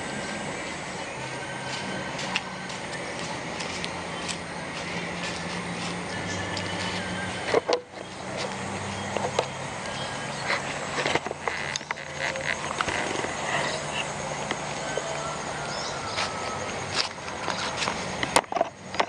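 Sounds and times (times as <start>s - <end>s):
low engine hum: 0.0s - 19.0s
steady background hiss: 0.0s - 19.0s
scattered clicks: 1.7s - 13.4s.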